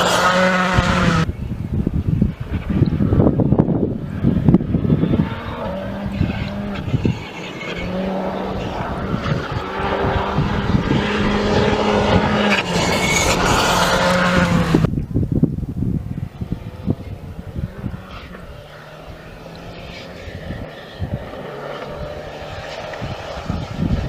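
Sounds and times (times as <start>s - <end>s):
rally car engine revving hard: 0.0s - 1.3s, 4.0s - 14.9s.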